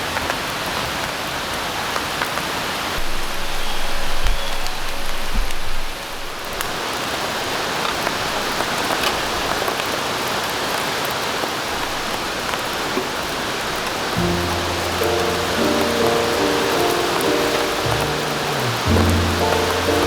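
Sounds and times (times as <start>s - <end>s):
rain falling in forest: 0.0s - 20.0s
water drips ticking: 12.1s - 20.0s.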